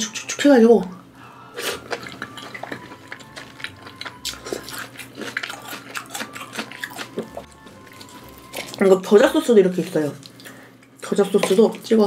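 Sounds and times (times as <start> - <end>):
chewing chicken skin: 1.6 - 8.8.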